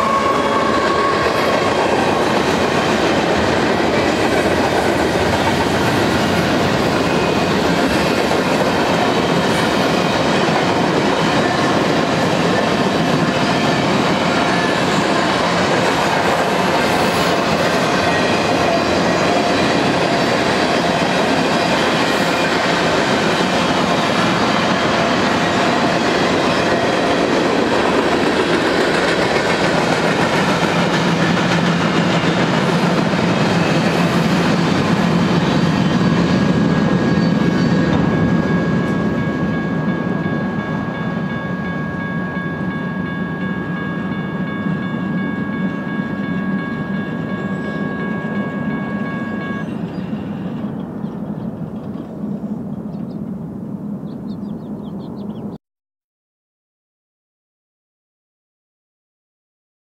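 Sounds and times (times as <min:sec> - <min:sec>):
freight train wheels clattering: 0:00.0 - 0:41.8.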